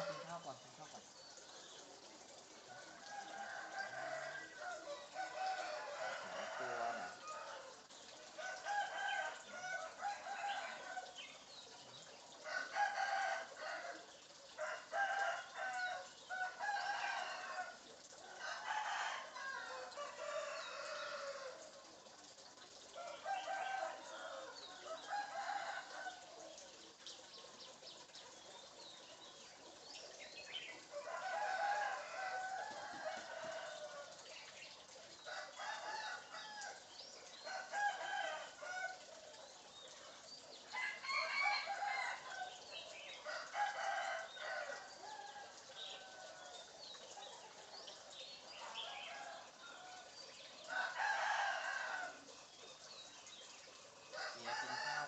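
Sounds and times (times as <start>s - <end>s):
bird clucking and crowing: 2.7s - 11.3s, 30.5s - 34.4s, 35.2s - 39.5s, 40.7s - 47.5s, 54.0s - 55.0s.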